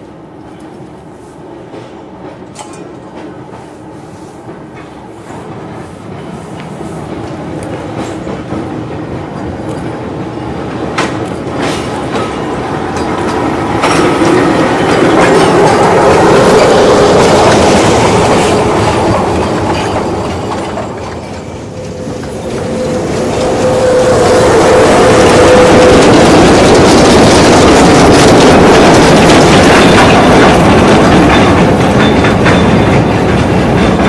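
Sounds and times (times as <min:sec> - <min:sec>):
wheels clattering over rail joints: 0:01.7 - 0:03.8, 0:07.2 - 0:34.0
steady whine: 0:14.8 - 0:28.3.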